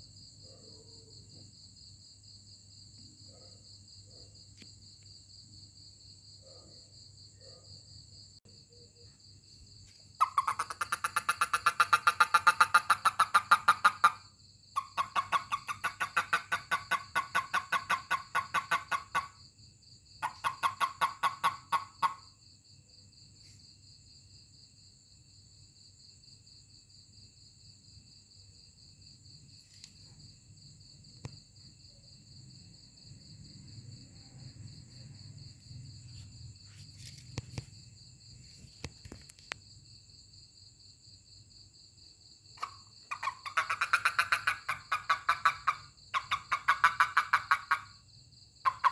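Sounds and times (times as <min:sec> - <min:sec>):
toad chirping call: 0:10.2 - 0:19.4, 0:20.2 - 0:22.3, 0:42.6 - 0:48.0, 0:48.6 - 0:48.9.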